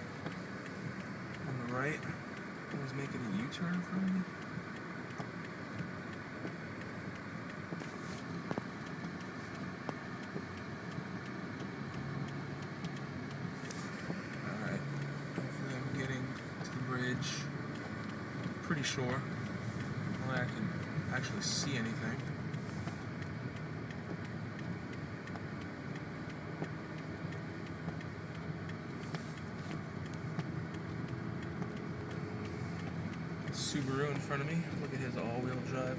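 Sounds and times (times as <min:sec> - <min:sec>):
engine and tyre rumble: 0:00.0 - 0:35.9
faint rapid ticking: 0:00.0 - 0:35.9
faint clicks and knocks: 0:00.1 - 0:35.9.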